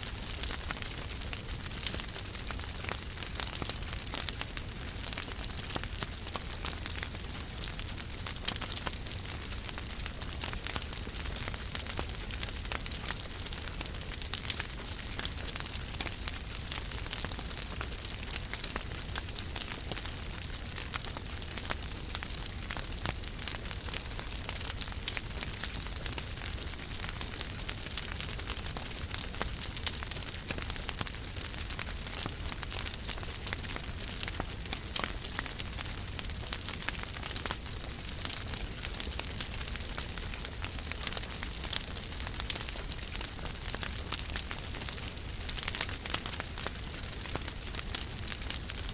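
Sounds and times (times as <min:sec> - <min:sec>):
wood fire crackling: 0:00.0 - 0:48.9
fire pops: 0:32.7 - 0:36.8.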